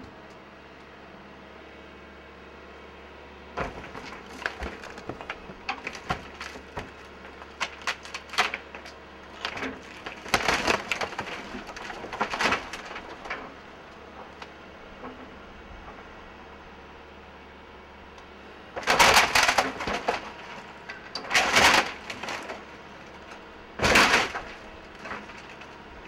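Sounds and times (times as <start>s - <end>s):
wood cracking and splintering: 3.6s - 15.2s, 18.7s - 26.0s.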